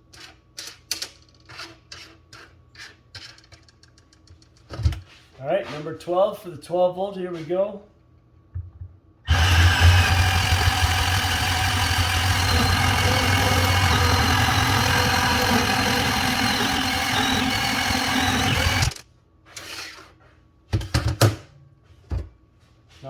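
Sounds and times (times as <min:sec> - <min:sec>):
band saw cutting pipe: 0:09.3 - 0:19.0.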